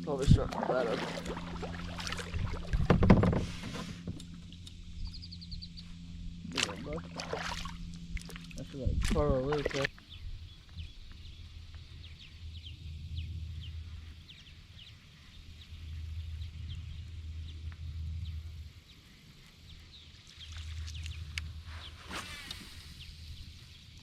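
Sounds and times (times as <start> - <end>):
low hum: 0.0 - 24.0
small birds chirping: 4.5 - 22.1.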